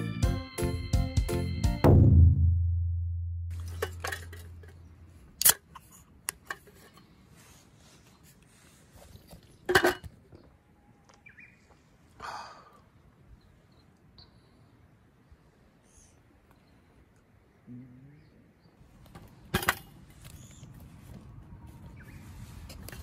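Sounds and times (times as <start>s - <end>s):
can opening crack: 5.4s - 6.5s.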